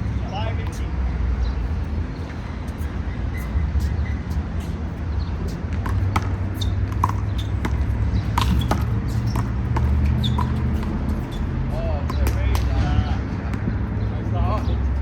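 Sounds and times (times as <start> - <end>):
steady low rumble: 0.0 - 15.0
handball smacks: 5.8 - 10.8.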